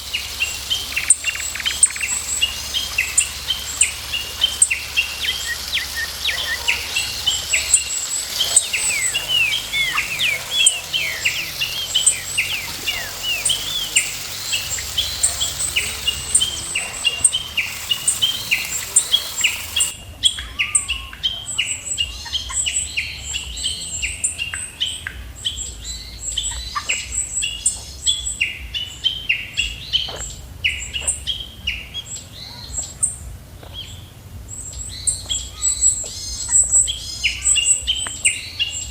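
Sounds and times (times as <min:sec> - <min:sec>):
high steady hiss: 0:00.0 - 0:20.2
birds chirping chorus: 0:00.0 - 0:38.9.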